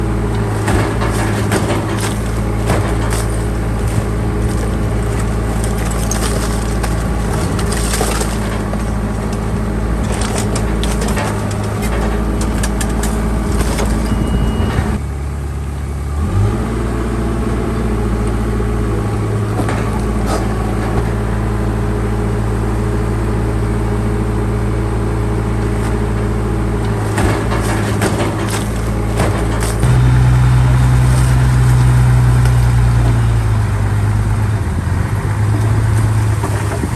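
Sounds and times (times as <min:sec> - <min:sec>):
bulldozer diesel engine running: 0:00.0 - 0:36.9
cracks and crunches of material: 0:00.6 - 0:14.1.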